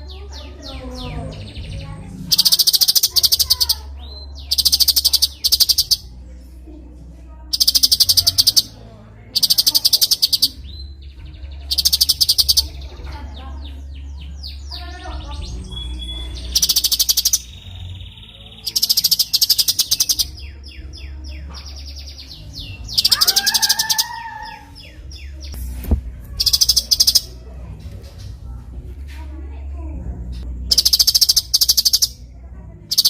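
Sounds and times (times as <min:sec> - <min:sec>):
bird singing high trills: 0:02.3 - 0:06.1, 0:07.5 - 0:08.8, 0:09.4 - 0:12.9, 0:15.5 - 0:25.6, 0:26.4 - 0:27.4, 0:30.7 - 0:32.2.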